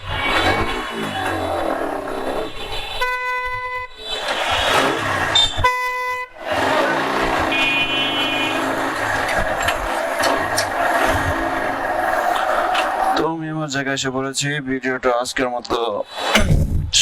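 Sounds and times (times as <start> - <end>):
traffic noise: 0.0 - 16.9
vehicle horn honking: 3.0 - 4.0, 5.3 - 9.2.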